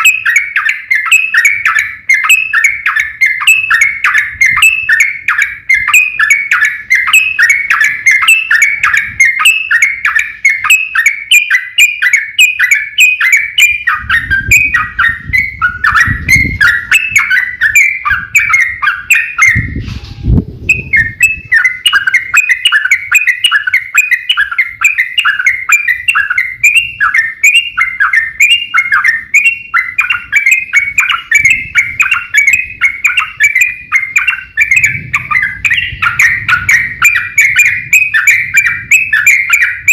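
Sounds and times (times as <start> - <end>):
bulbul chirping song: 0.0 - 19.8, 20.7 - 39.9.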